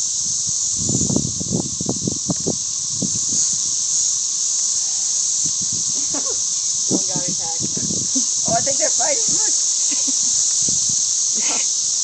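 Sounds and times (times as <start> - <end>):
cicadas shrill hiss: 0.0 - 12.0
low crackles and knocks: 6.0 - 8.5.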